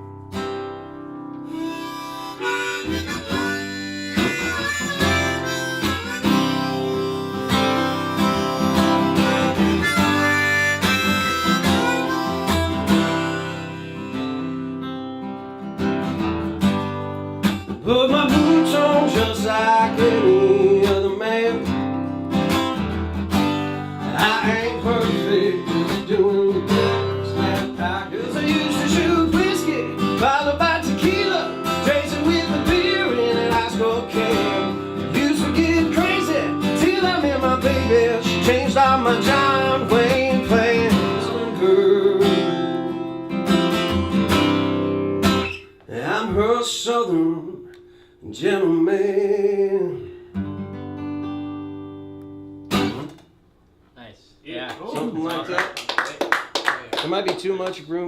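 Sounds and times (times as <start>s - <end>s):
strummed acoustic guitar: 0.0s - 53.2s
harmonica melody: 0.4s - 17.4s, 18.1s - 45.8s.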